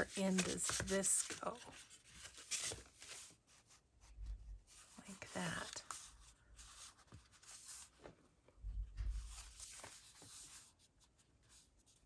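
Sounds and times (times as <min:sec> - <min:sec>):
paper rustling and sliding: 0:00.0 - 0:03.8, 0:04.7 - 0:08.2, 0:09.0 - 0:10.9
soft bump: 0:08.6 - 0:09.5.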